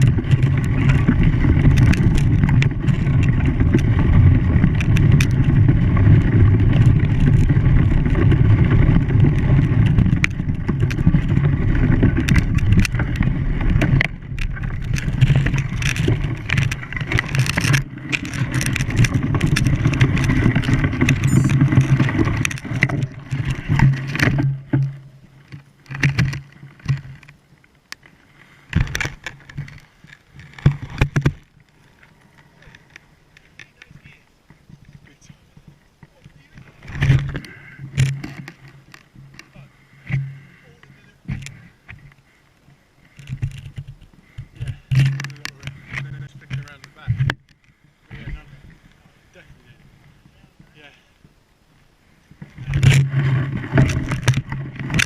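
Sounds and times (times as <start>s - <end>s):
knocks and clicks: 0.0s - 27.3s.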